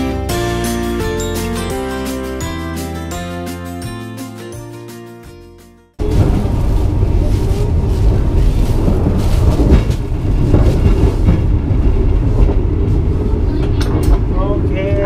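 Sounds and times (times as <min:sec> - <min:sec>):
moving train rumble: 0:06.0 - 0:15.0.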